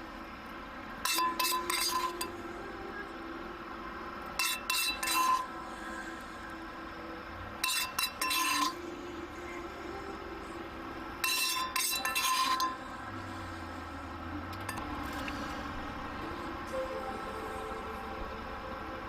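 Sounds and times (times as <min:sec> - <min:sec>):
metal utensil clinking on cookware: 0:01.0 - 0:02.4, 0:04.4 - 0:05.5, 0:07.6 - 0:08.8, 0:11.2 - 0:12.8.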